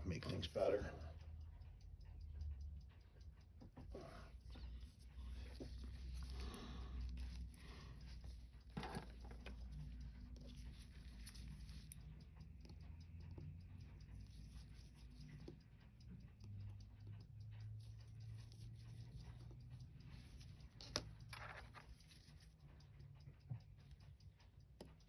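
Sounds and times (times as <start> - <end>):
steady low hum: 0.0 - 25.0
small metal parts clicking: 17.8 - 22.7.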